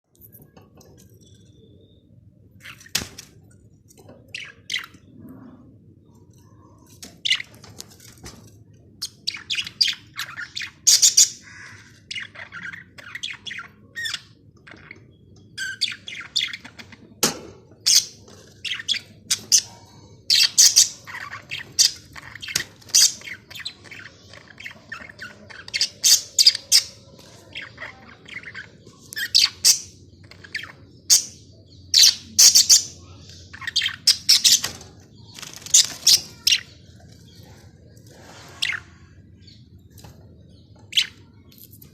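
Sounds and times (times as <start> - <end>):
budgerigars chirping: 9.0 - 17.1, 17.8 - 34.7.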